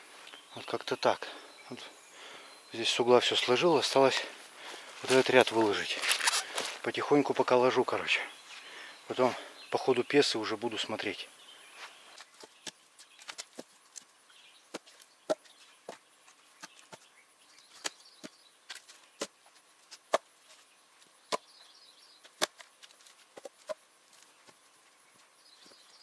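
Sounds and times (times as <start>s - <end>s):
faint birdsong chirps: 0.0s - 26.0s
wooden logs clacking: 3.3s - 7.0s.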